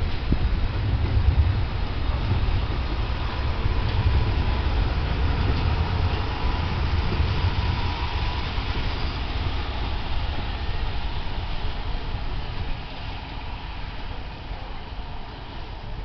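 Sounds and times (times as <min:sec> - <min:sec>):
train wheels rumbling on track: 0:00.0 - 0:16.0
faint wheel squeal: 0:05.4 - 0:16.0.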